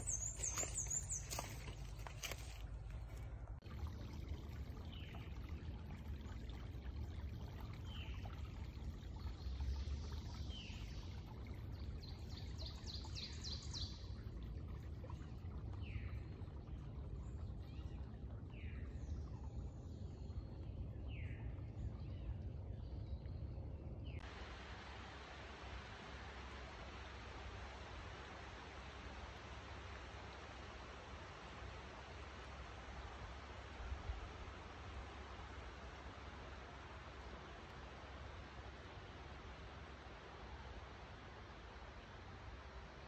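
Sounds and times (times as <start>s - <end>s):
birds singing: 0.0s - 2.6s.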